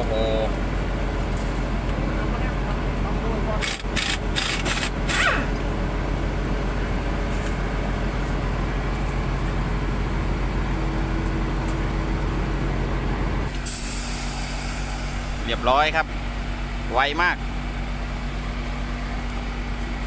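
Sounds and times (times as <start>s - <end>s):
engine running: 0.0s - 20.0s
pneumatic impact wrench bursts: 3.6s - 5.5s, 13.6s - 15.5s.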